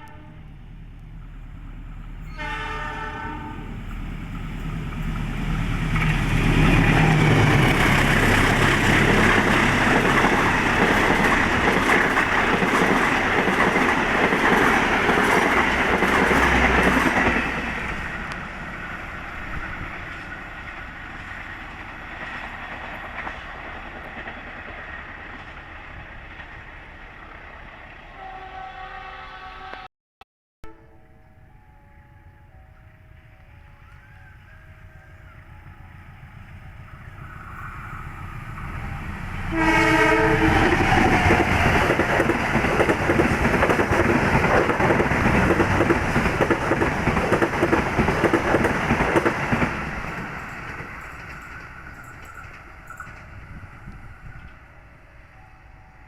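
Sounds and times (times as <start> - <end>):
train horn blast: 0.0 - 0.7, 2.2 - 4.0, 28.1 - 29.9, 39.5 - 41.4
train rushing and clattering past: 0.6 - 28.2, 35.4 - 55.4.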